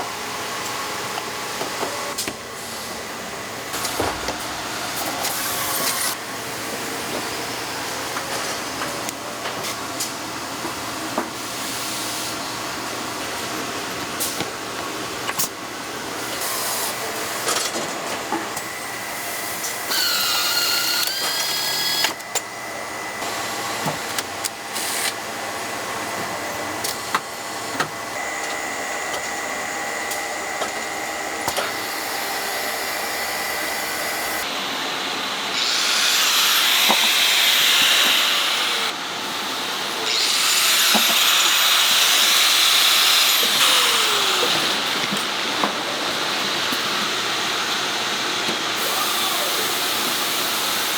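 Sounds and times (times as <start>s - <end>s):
electric motor whining: 19.9s - 22.2s.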